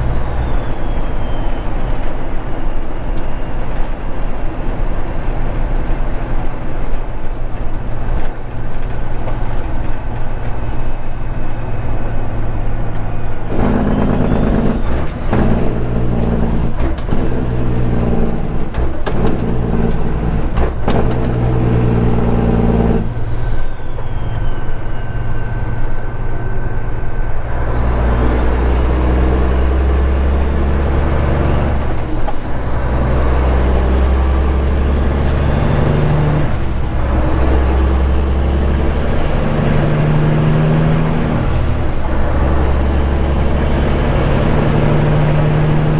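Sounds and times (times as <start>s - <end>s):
high whistle: 0.0s - 3.4s, 22.9s - 27.3s
diesel truck engine running: 0.0s - 45.9s.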